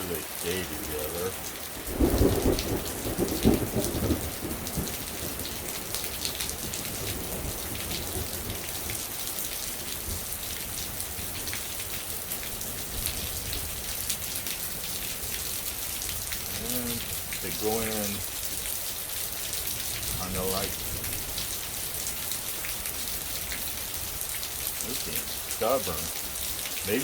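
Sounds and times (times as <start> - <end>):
raindrops ticking: 0.0 - 27.0
steady rain falling: 0.0 - 27.0
thunder rumble: 1.8 - 8.6.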